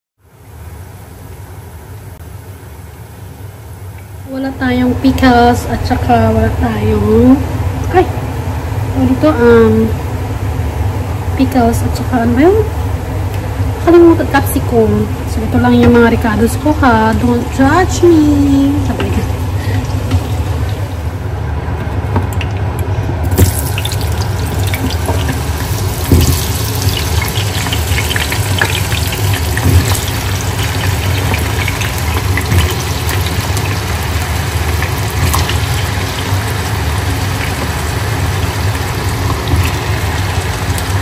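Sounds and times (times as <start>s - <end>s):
low steady hum: 0.2s - 41.0s
potatoes sizzling in oil: 23.2s - 41.0s.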